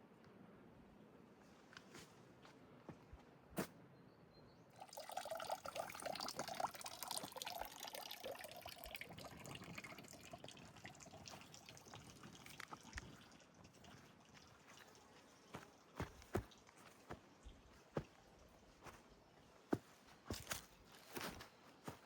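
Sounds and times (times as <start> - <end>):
running water splashing: 4.8 - 19.0.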